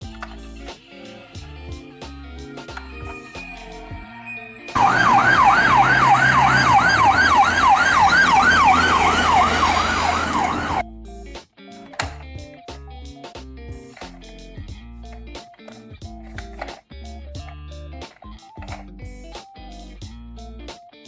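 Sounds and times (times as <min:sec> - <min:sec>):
background music: 0:00.0 - 0:21.0
electronic siren yelping: 0:03.1 - 0:10.8.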